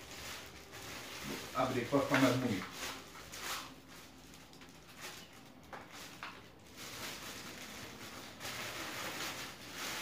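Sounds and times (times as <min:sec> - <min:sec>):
cellophane crinkling: 0:00.0 - 0:10.0.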